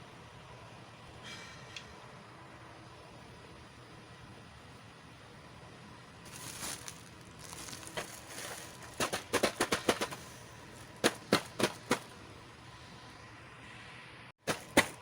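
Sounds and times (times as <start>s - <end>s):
soft rustle: 6.3s - 12.1s
plastic toy pieces clicking: 8.9s - 10.3s.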